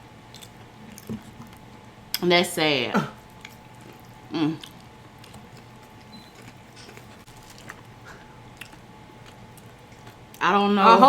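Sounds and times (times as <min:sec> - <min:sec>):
mouth clicks and chewing: 0:03.3 - 0:10.4.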